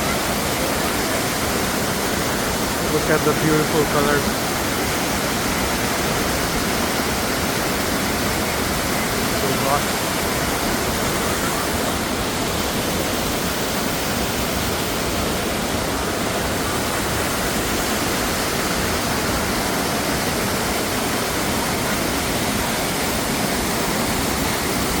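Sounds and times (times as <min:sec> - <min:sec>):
waterfall rushing over rocks: 0:00.0 - 0:25.0.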